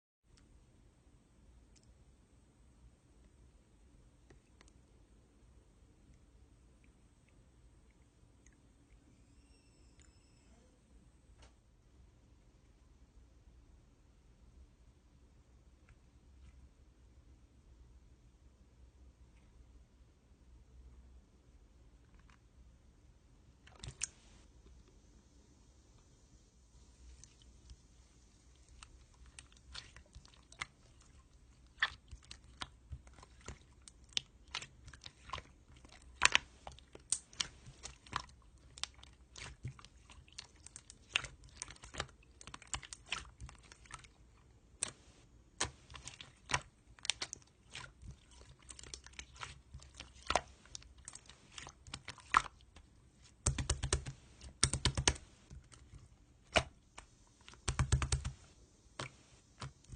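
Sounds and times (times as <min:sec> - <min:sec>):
slime clicking and popping: 0:28.7 - 0:44.1, 0:45.6 - 0:58.4.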